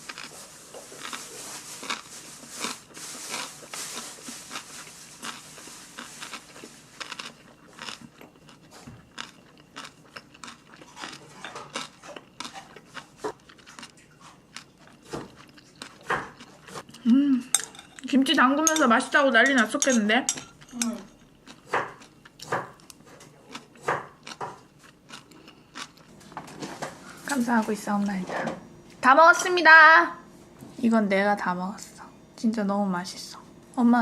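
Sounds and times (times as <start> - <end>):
person chewing crunchy food: 0.0 - 18.1, 20.5 - 26.6.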